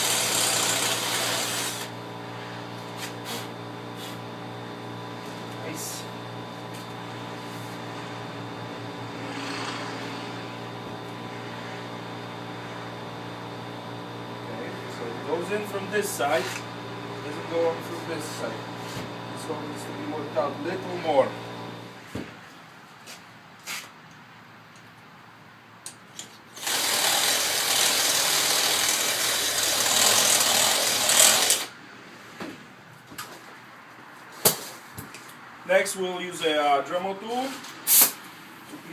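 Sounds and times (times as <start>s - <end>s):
power tool working metal: 0.0s - 2.1s, 9.0s - 12.0s, 26.5s - 31.8s
steady background hum: 0.0s - 38.9s.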